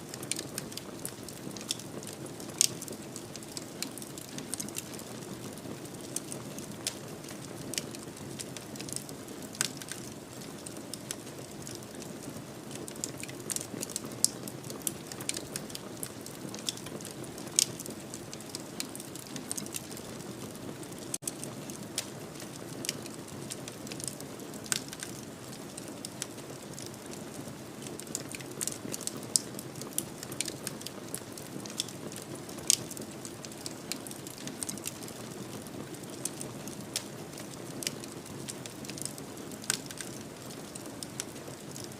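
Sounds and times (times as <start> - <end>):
wood fire crackling: 0.0 - 41.9
fire pops and snaps: 0.1 - 12.1, 12.7 - 20.2, 20.9 - 41.9.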